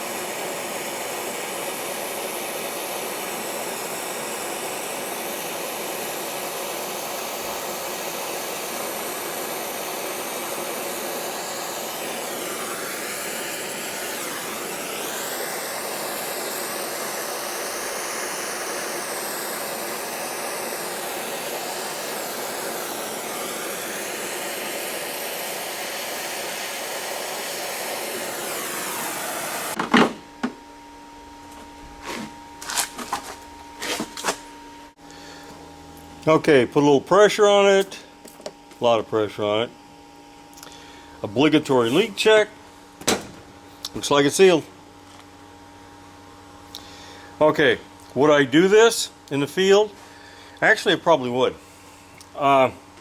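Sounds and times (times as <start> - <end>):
torch flame hissing: 0.0 - 29.8, 41.3 - 42.5
torch shutting off pop: 0.0 - 30.6, 43.0 - 44.1.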